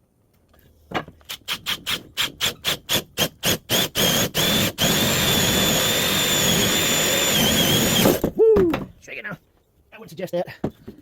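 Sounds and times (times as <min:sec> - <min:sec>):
power drill boring into wood: 0:01.5 - 0:08.2.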